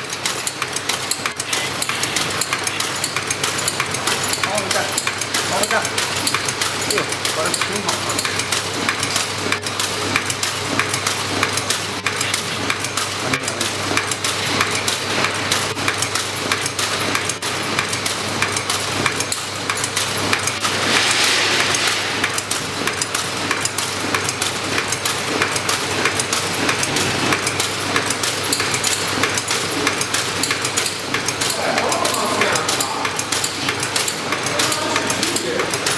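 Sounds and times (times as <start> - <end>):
fast mechanical clicking and clinking: 0.0 - 35.9
machine humming: 20.2 - 24.3
machine hiss: 20.3 - 24.4.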